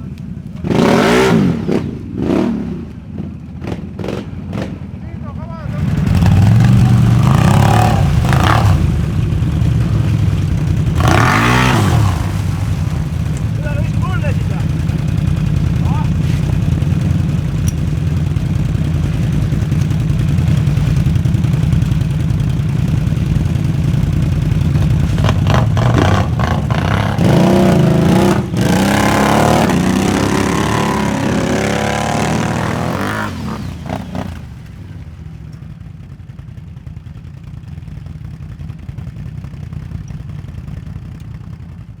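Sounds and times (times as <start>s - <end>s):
atv engines revving: 0.0s - 36.1s.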